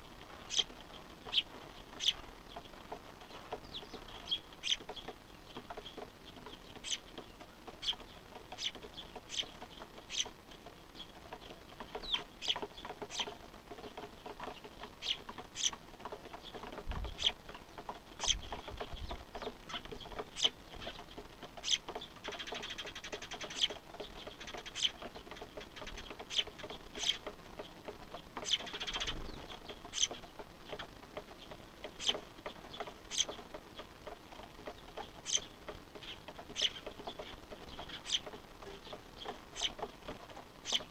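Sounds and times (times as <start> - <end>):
fledglings begging calls: 0.4 - 40.9.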